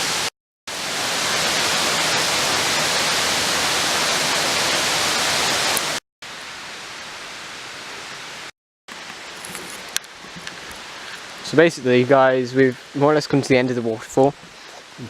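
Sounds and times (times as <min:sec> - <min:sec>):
waterfall roaring: 0:00.0 - 0:06.0.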